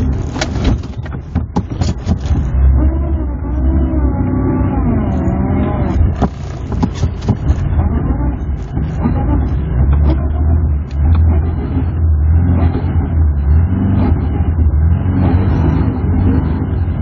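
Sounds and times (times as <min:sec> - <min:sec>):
sharp knocks and clatter: 0:00.0 - 0:02.6, 0:06.2 - 0:07.8
car engine running: 0:00.0 - 0:17.0.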